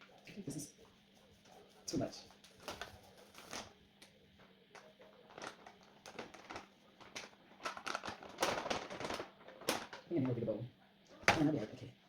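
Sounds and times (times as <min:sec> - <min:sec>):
kitchen things clicking and tapping: 0:11.1 - 0:11.7.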